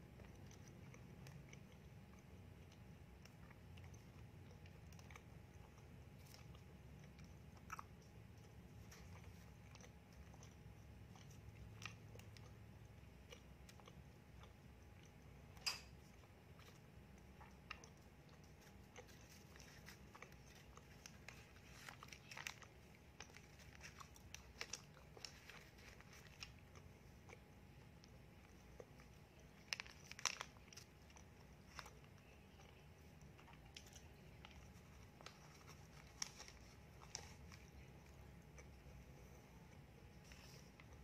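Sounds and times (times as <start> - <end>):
chewing and biting: 0.0 - 41.0
paper crinkling: 18.4 - 26.8, 28.9 - 32.5, 33.5 - 38.2, 40.2 - 41.0.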